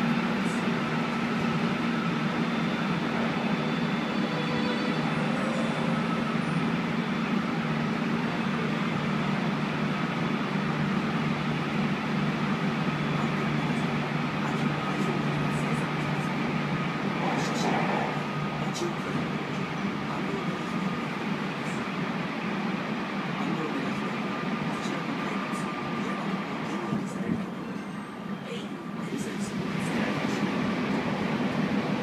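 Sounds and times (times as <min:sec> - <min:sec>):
train running hum: 0:00.0 - 0:32.0
faint high tones: 0:03.4 - 0:07.4.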